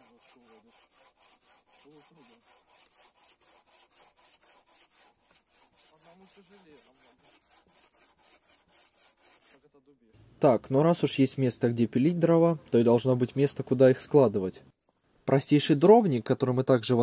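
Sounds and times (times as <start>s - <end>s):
bow saw rasping through log: 0.0s - 9.9s.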